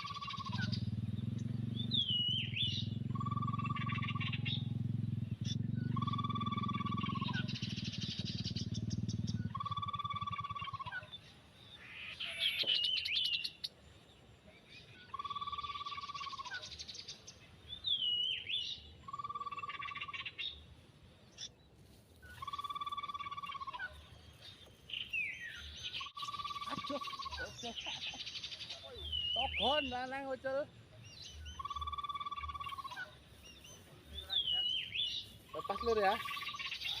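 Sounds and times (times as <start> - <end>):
low rumble: 0.0 - 11.2
sharp sweeping chirps: 0.0 - 13.7, 22.2 - 37.0
bird twittering: 0.0 - 13.8, 14.7 - 21.6, 22.2 - 37.0
small bird calls: 0.0 - 37.0.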